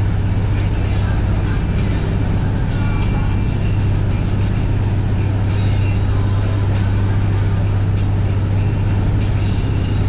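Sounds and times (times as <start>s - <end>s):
motorboat engine humming: 0.0s - 10.0s.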